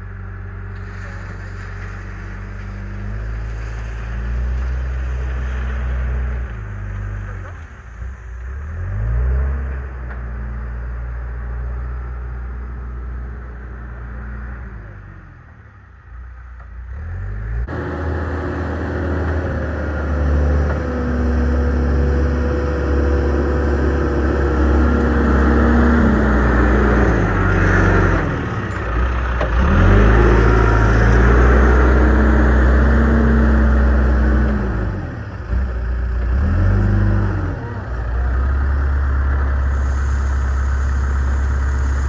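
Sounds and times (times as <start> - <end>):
diesel digger engine under load: 0.0 - 42.0.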